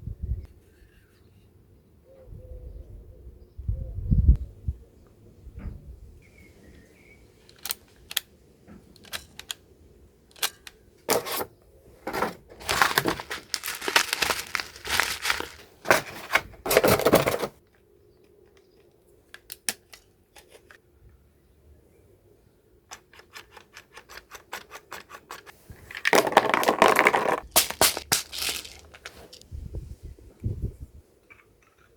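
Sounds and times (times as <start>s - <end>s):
packaging crinkling and tearing: 12.5s - 17.1s, 26.1s - 29.4s.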